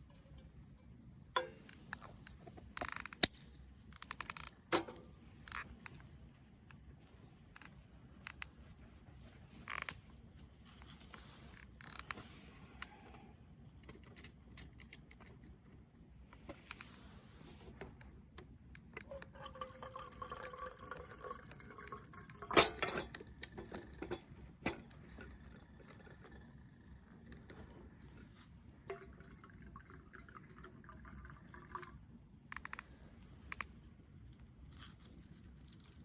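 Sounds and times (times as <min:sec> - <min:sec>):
liquid pouring into container: 0:19.0 - 0:22.6, 0:28.8 - 0:32.1
cookware clicking and knocking: 0:22.5 - 0:23.2.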